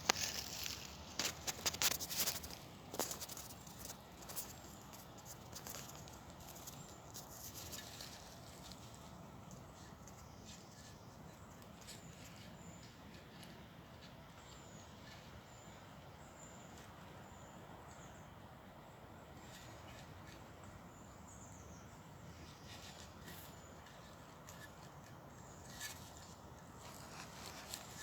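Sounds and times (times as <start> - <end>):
soft clicks and rustles: 0.0 - 15.4, 22.5 - 28.0.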